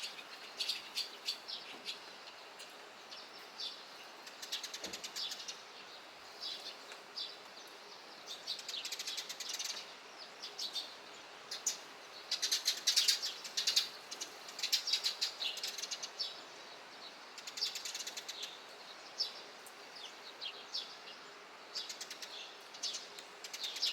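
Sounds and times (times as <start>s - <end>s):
sparrows chirping: 0.0s - 23.9s
steady background hiss: 0.0s - 23.9s.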